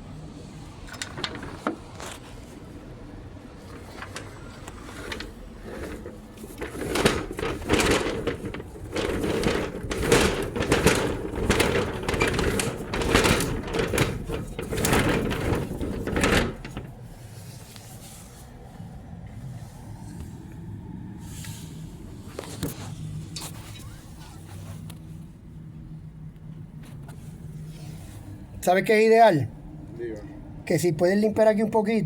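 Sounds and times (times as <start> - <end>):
storm shutter rattling and scraping: 0.2 - 18.7.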